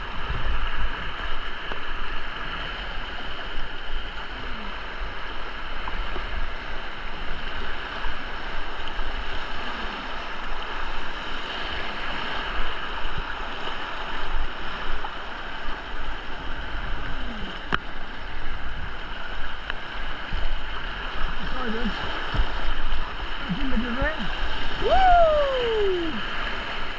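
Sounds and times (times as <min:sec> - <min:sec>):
river whitewater rushing: 0:02.9 - 0:26.9
wind buffeting microphone: 0:18.1 - 0:26.9.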